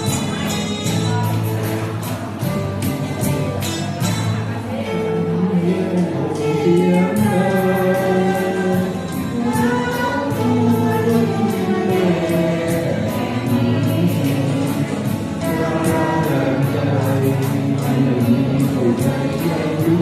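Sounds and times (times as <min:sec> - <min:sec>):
instrumental backing with beat: 0:00.0 - 0:20.0
voices singing together: 0:04.7 - 0:20.0.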